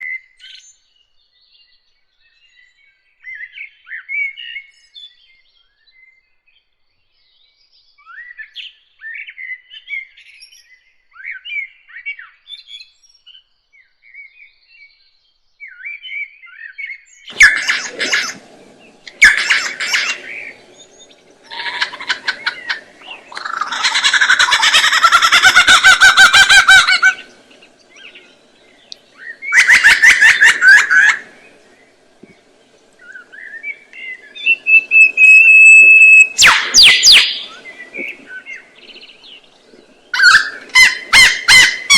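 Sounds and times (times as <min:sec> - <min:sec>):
birds chirping: 0:17.3 - 0:41.9
rapid chattering bird calls: 0:17.3 - 0:41.9
whistled note: 0:33.5 - 0:38.0.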